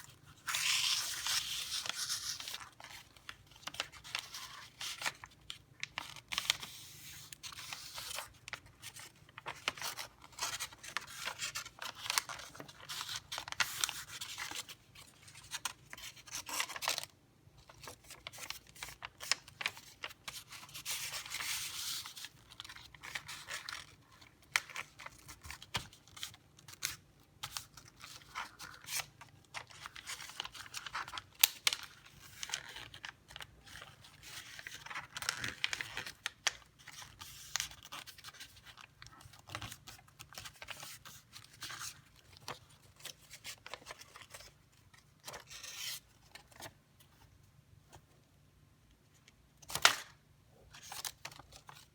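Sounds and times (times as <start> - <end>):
paper rustling and creasing: 0.0 - 26.8, 27.5 - 48.1.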